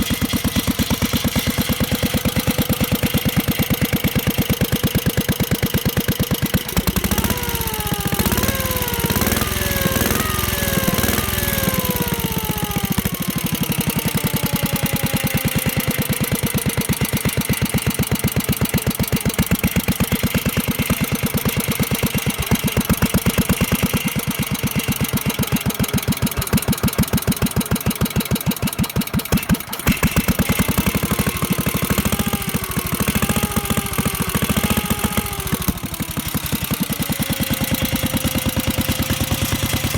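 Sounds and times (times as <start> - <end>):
stationary engine running: 0.0 - 39.9
whining tone falling in pitch: 6.6 - 16.4.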